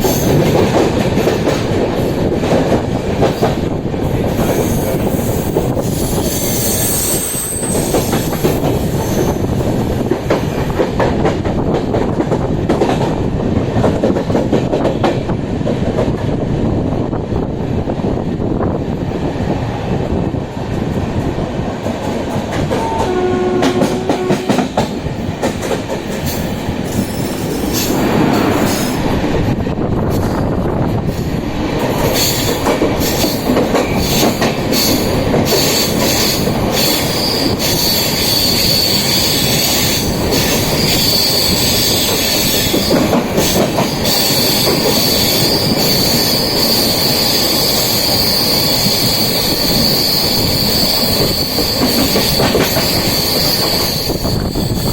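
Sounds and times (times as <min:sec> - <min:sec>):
train wheels clicking on rails: 0:00.0 - 0:54.9
high wheel squeal: 0:04.6 - 0:09.6, 0:26.9 - 0:29.0, 0:35.6 - 0:43.1, 0:44.0 - 0:54.9.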